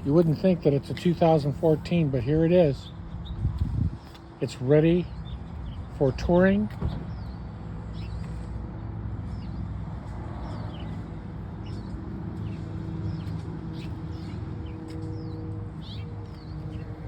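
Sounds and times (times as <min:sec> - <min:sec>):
small birds chirping: 0:06.8 - 0:08.5, 0:10.4 - 0:17.0.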